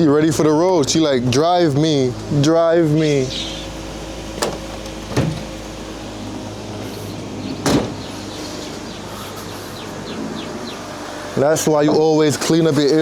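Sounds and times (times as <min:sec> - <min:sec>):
car engine idling: 0:00.0 - 0:13.0
engine knocks: 0:00.3 - 0:09.1.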